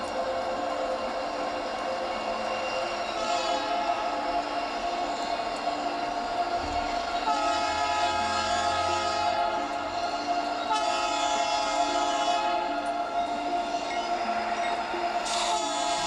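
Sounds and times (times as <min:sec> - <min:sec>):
locomotive air horn blasts: 0:03.1 - 0:04.3, 0:07.2 - 0:12.8, 0:15.2 - 0:16.0.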